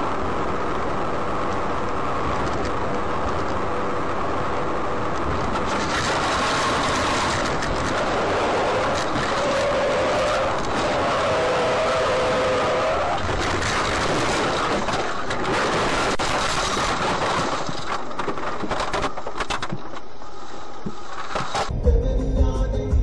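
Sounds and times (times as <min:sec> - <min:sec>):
vehicle road and engine noise: 0:00.0 - 0:23.0.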